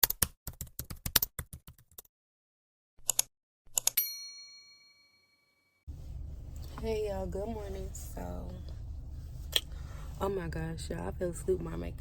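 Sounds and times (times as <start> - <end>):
rapid typing clicks: 0.0 - 2.0
bell ding: 4.0 - 5.7.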